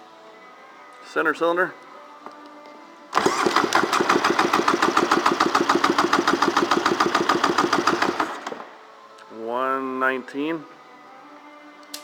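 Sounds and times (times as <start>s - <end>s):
jet ski engine cranking: 3.2s - 8.7s.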